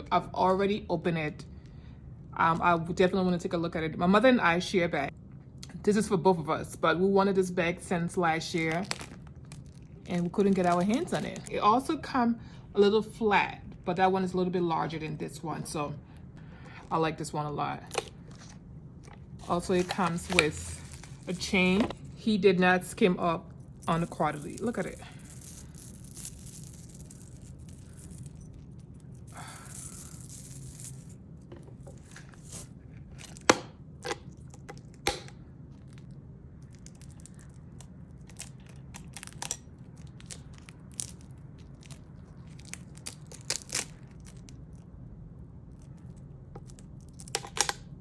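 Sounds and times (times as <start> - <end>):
steady low hum: 0.0 - 48.0
rustling and scraping: 18.0 - 22.2, 23.8 - 33.5.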